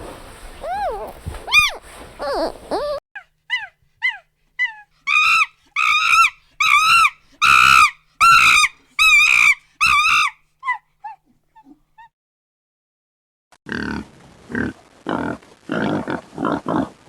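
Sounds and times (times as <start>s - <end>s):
animal high-pitched cries: 0.6s - 11.8s.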